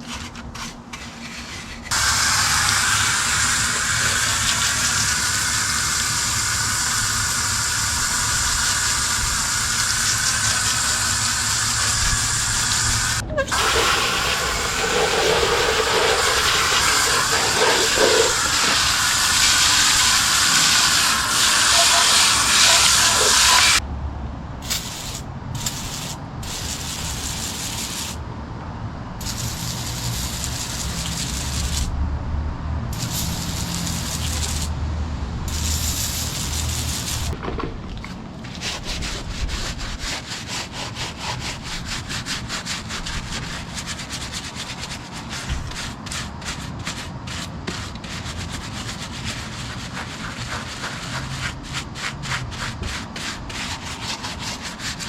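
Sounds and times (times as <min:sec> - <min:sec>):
hand rubbing on metal: 0:13.3 - 0:23.8, 0:38.4 - 0:55.0.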